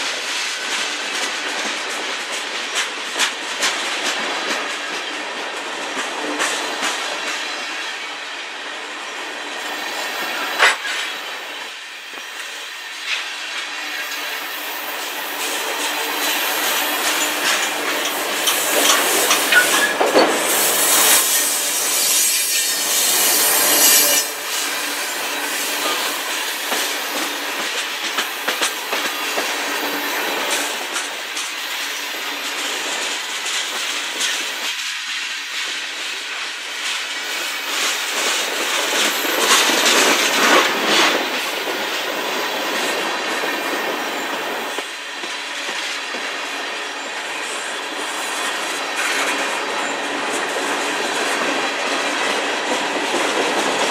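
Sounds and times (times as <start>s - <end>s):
wheels clicking over rail joints: 15.8s - 20.5s.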